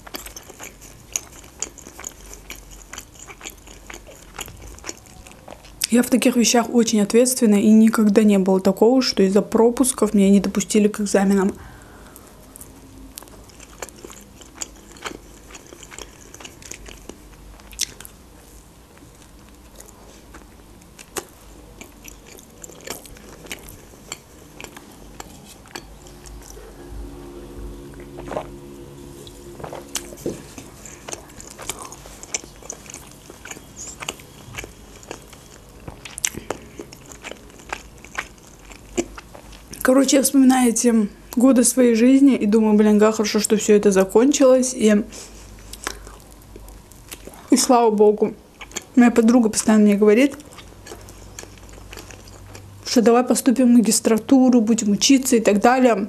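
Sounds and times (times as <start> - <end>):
biting and chewing bread: 0.0 - 5.9, 12.6 - 18.2, 18.9 - 26.7, 27.9 - 39.8, 50.3 - 52.8.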